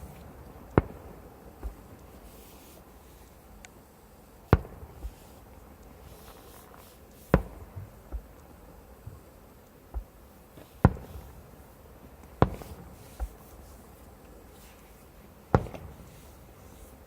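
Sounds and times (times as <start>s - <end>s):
fireworks bangs: 0.0s - 2.4s, 10.8s - 11.5s, 12.4s - 13.4s, 15.5s - 16.2s.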